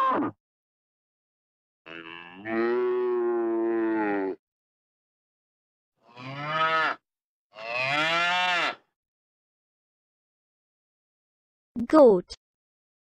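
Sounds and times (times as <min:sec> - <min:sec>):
cows mooing: 0:01.9 - 0:04.4, 0:06.1 - 0:07.0, 0:07.6 - 0:08.8.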